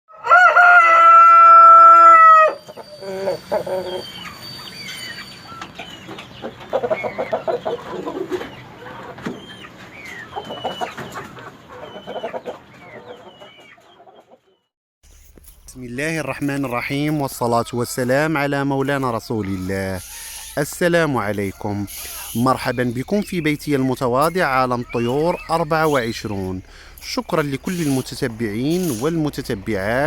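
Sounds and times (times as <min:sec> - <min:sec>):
rooster crowing: 0:00.1 - 0:04.2, 0:16.9 - 0:19.4
chickens clucking: 0:02.6 - 0:14.7, 0:16.0 - 0:30.0
small birds chirping: 0:02.7 - 0:14.7, 0:15.5 - 0:30.0.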